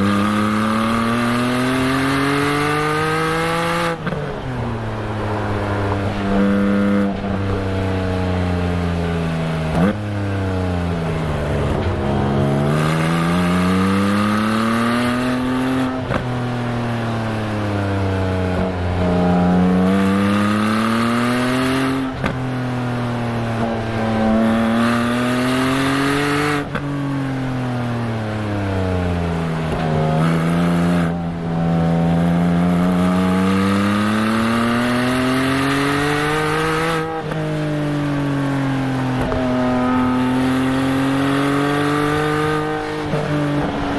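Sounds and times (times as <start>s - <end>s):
car exhaust revving: 0.0s - 26.9s.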